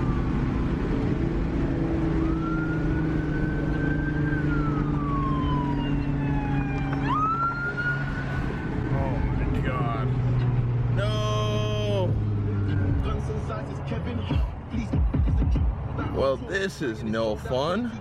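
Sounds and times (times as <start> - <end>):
police siren wailing: 0.0 - 10.1, 11.0 - 14.6
car engine droning: 0.0 - 18.0.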